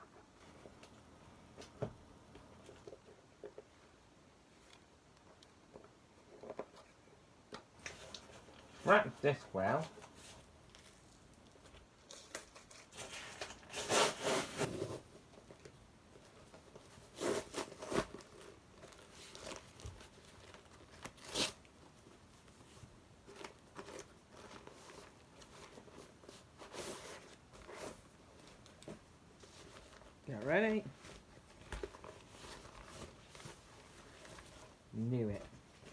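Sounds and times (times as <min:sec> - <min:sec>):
packaging tearing and crinkling: 0:17.1 - 0:21.7.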